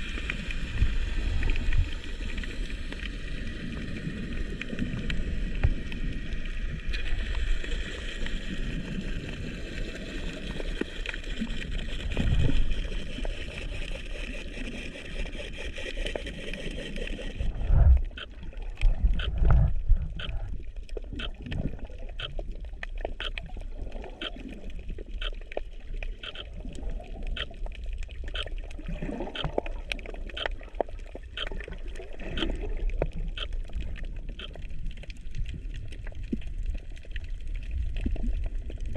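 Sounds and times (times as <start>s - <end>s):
water surging and gurgling: 0.0s - 38.9s
sharp clicks crackling: 26.2s - 26.5s.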